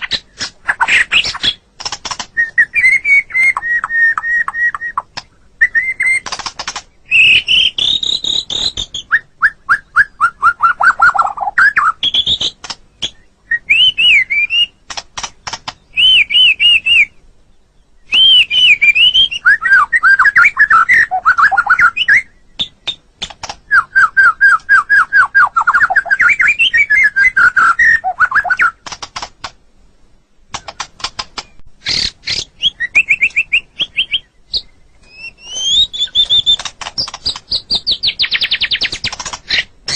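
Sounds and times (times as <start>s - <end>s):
bird singing whistled phrases: 2.3s - 6.3s, 7.1s - 14.8s, 15.9s - 17.2s, 18.0s - 23.0s, 23.7s - 28.8s, 31.8s - 39.9s.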